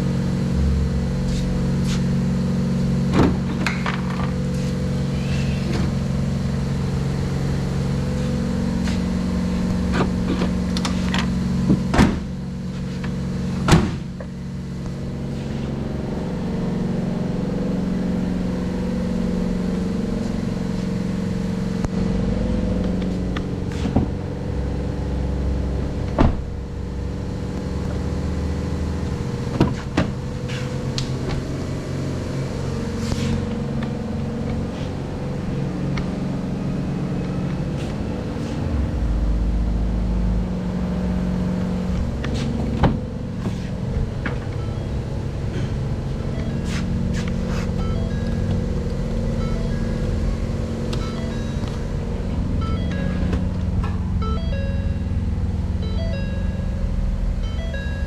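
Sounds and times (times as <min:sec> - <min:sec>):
car engine idling: 0:00.0 - 0:58.0
engine clicks and knocks: 0:03.0 - 0:04.6, 0:08.8 - 0:15.0, 0:25.8 - 0:31.7, 0:41.6 - 0:55.7.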